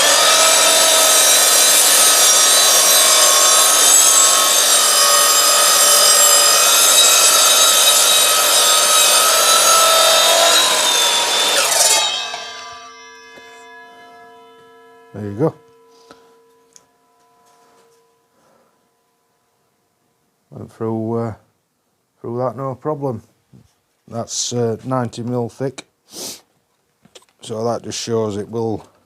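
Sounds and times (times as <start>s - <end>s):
mitre saw cutting timber: 0.0s - 15.9s
saw blade winding down: 0.0s - 17.3s.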